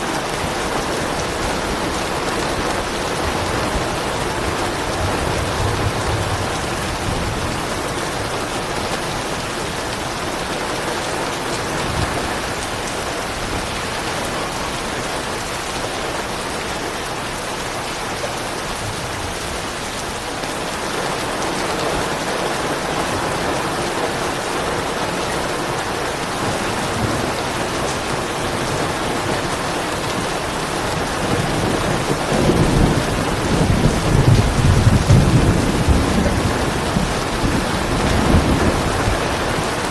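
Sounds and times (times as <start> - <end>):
steady rain falling: 0.0 - 39.9
soft thunder rumbling: 0.2 - 9.4, 30.2 - 39.9.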